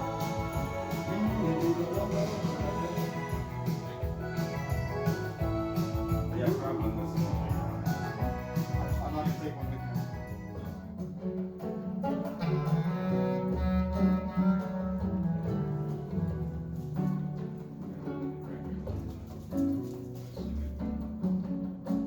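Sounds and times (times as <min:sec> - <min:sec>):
music with strong bass line: 0:00.0 - 0:10.6.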